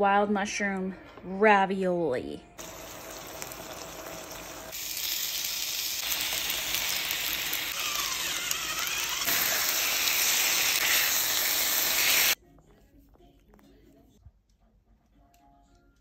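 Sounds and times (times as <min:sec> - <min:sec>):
food sizzling in oil: 0:02.6 - 0:12.4.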